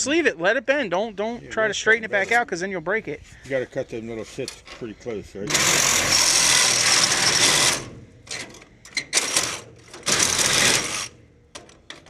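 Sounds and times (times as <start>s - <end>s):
reciprocating saw cutting metal: 5.5s - 8.0s, 9.0s - 11.2s.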